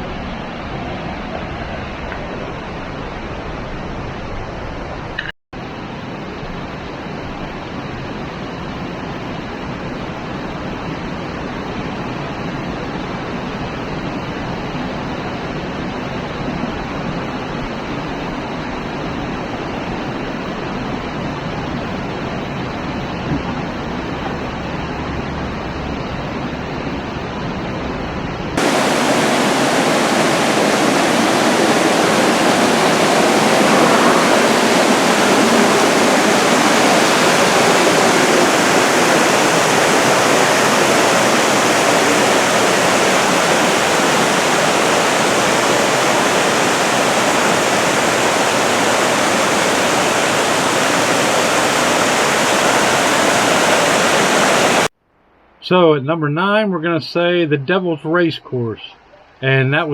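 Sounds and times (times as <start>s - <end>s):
waterfall rushing: 28.6s - 54.9s.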